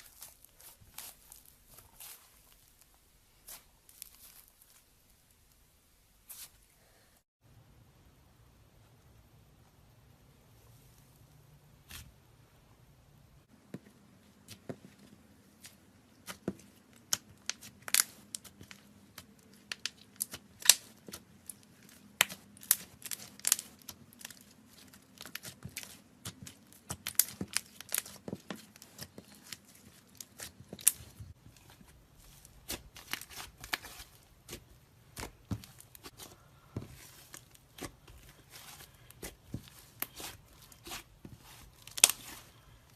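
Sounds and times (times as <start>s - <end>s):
slime crackling and snapping: 17.1s - 31.1s, 37.2s - 42.5s.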